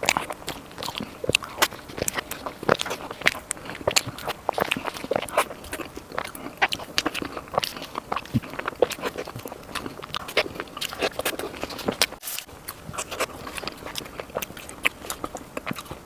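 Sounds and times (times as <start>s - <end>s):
chewing sticky dessert: 0.0s - 16.0s.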